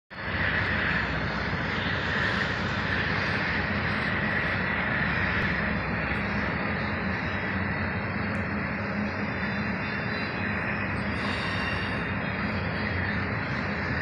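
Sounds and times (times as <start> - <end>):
low rumble: 0.1 - 14.0
train wheels on rails: 0.2 - 14.0
high hiss: 10.6 - 12.6.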